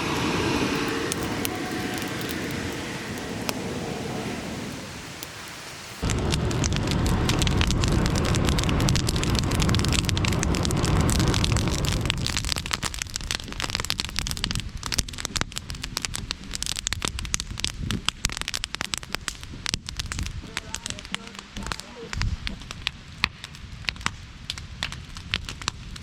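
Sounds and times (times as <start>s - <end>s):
loud low rumble: 0.0s - 5.1s, 6.0s - 17.7s
campfire crackling and popping: 0.0s - 26.0s.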